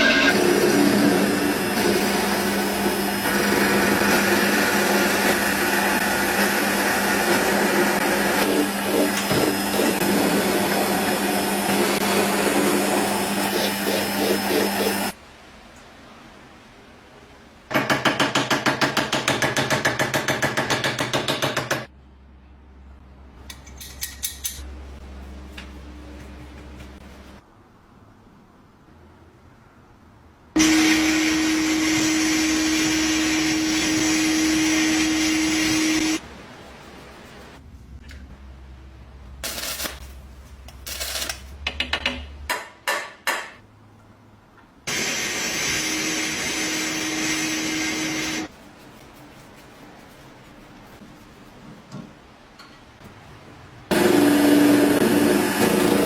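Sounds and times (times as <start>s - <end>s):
metal parts and tools clinking: 23.4s - 24.7s.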